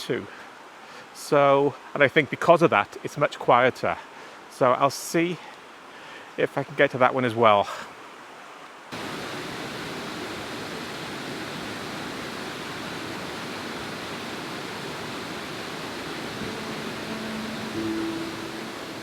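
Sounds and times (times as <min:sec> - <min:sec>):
waterfall roaring: 0:09.0 - 0:19.0.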